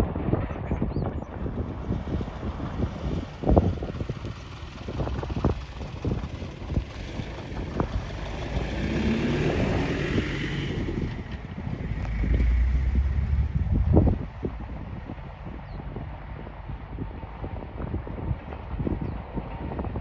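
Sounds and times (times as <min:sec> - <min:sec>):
rumble: 0:00.0 - 0:19.7
wind on microphone: 0:00.0 - 0:20.0.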